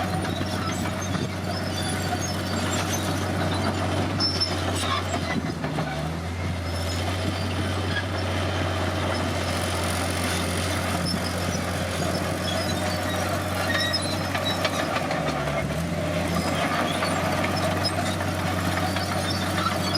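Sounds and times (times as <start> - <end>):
bulldozer diesel engine drone: 0.0 - 19.9
short high squeaks: 0.1 - 5.4, 9.1 - 15.4, 16.3 - 19.9.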